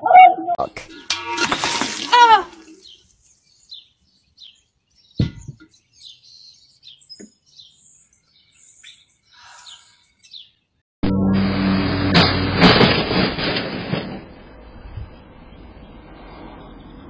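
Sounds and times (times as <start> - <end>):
birds chirping: 0.1 - 10.8
dull thump: 5.2 - 5.7.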